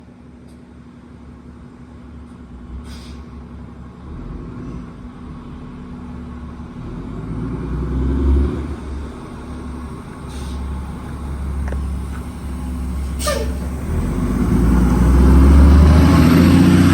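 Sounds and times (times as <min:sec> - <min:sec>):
vehicle engine rumbling: 0:00.0 - 0:16.9
short hisses: 0:02.8 - 0:03.3, 0:10.2 - 0:10.8, 0:12.9 - 0:14.0.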